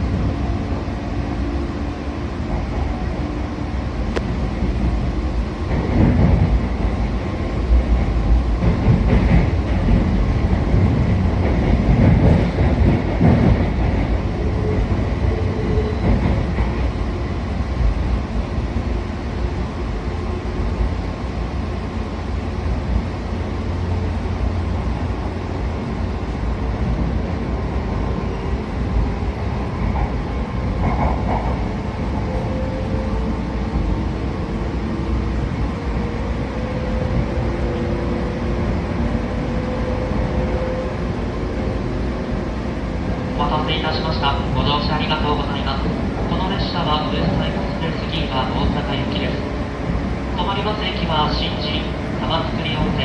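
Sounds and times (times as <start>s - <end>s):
electric train rumbling on rails: 0.0s - 53.0s
train wheels knocking: 8.0s - 14.2s.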